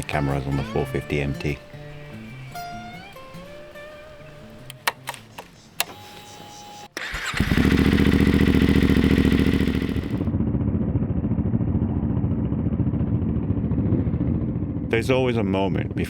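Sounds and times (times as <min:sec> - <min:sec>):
motorcycle engine cranking: 0:00.0 - 0:10.3
motorcycle engine running: 0:00.0 - 0:15.2.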